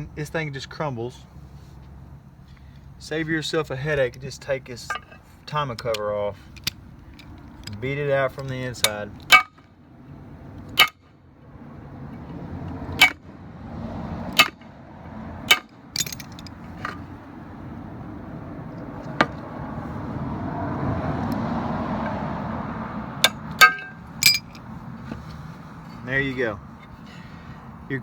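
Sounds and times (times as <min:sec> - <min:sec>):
sharp metal knocks: 0:08.8 - 0:09.7, 0:10.7 - 0:11.0, 0:12.9 - 0:13.2, 0:14.3 - 0:14.7, 0:15.4 - 0:17.1, 0:23.2 - 0:24.6.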